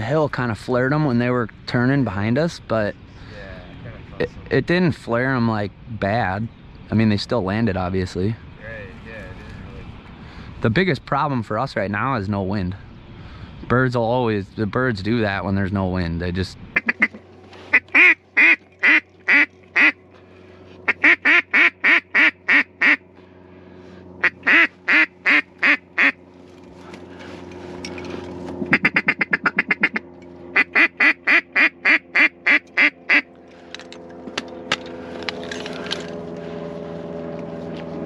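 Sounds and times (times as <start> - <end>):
engine hum: 0.0 - 38.0
duck call quacks: 16.8 - 20.0, 20.9 - 23.0, 24.2 - 26.2, 28.7 - 30.0, 30.6 - 33.3.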